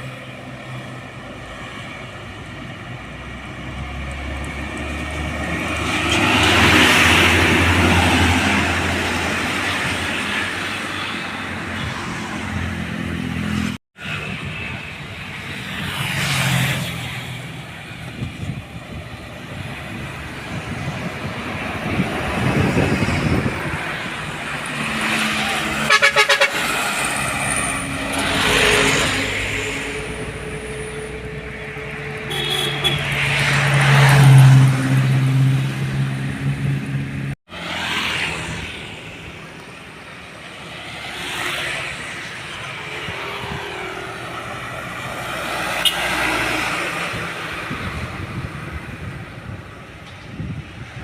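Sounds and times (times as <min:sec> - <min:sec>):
heavy trucks driving past: 0:00.0 - 0:51.0
held horn-like tones: 0:25.4 - 0:33.4
vehicle horn pulsing toots: 0:25.8 - 0:26.8, 0:32.2 - 0:33.1.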